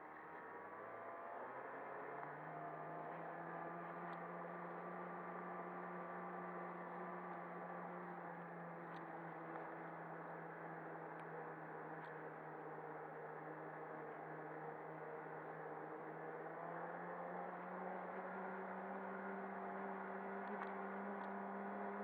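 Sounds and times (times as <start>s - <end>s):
faint ticks: 20.4s - 21.4s.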